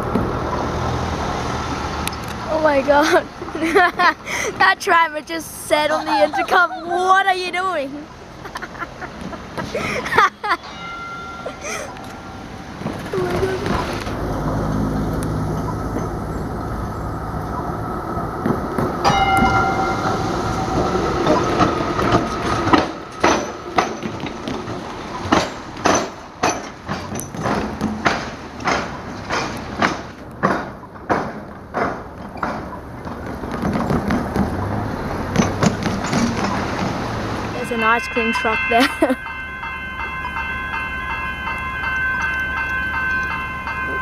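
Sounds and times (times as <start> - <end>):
train wheels clacking over rails: 18.4 - 37.5.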